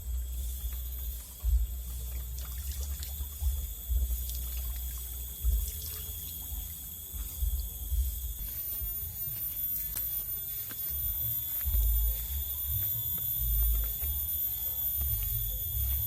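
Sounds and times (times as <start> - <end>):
water trickling: 0.0 - 8.6
high-pitched drone: 0.0 - 16.0.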